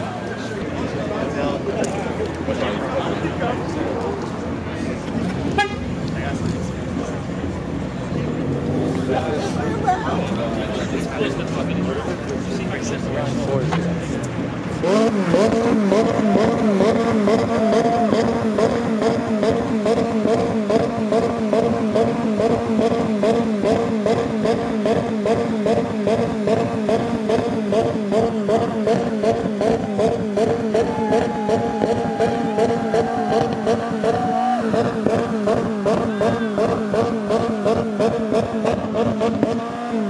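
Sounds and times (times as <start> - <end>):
police siren warbling: 30.7 - 35.2, 35.9 - 36.9.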